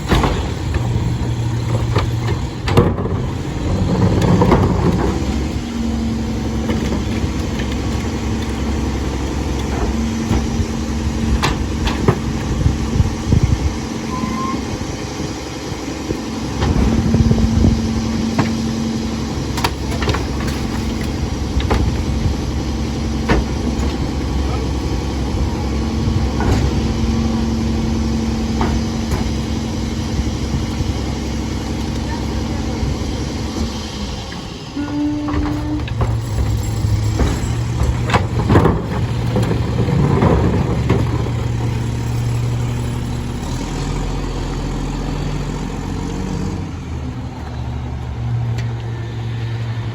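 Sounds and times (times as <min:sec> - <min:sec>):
sharp clanks and knocks: 0:00.0 - 0:05.8, 0:35.1 - 0:43.6
machine whine: 0:00.0 - 0:45.1
diesel engine running: 0:00.0 - 0:49.9.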